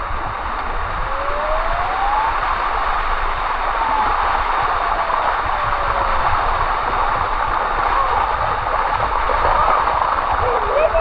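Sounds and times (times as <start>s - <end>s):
waterfall rushing: 0.3s - 11.0s.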